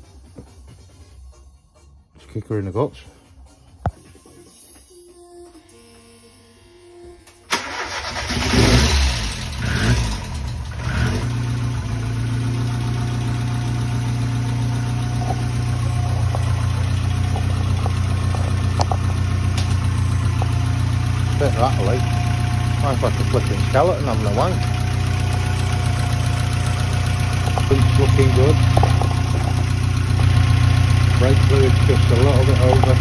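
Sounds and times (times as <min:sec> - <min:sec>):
car engine starting and idling: 0:07.4 - 0:33.0.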